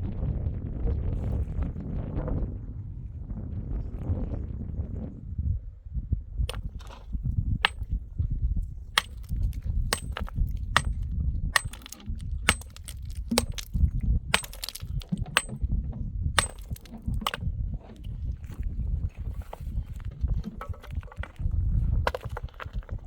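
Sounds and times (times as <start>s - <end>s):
wind rumble on microphone: 0.0s - 23.0s
hard objects clacking on stone: 7.6s - 7.8s, 9.0s - 11.0s, 11.6s - 15.6s, 16.4s - 17.4s, 22.1s - 23.0s.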